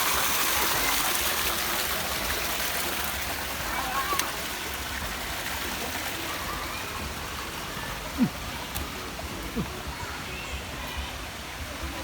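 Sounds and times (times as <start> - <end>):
faint voices: 3.4 - 12.0.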